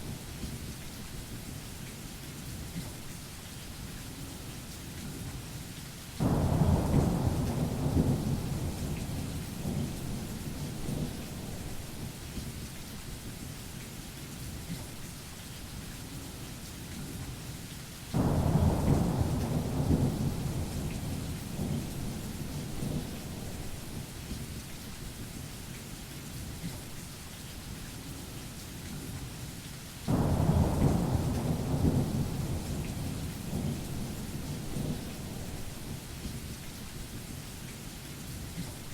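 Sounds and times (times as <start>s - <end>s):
steady rain: 0.0s - 38.9s
thunder rumbling: 6.2s - 12.4s, 18.2s - 24.3s, 30.1s - 36.3s.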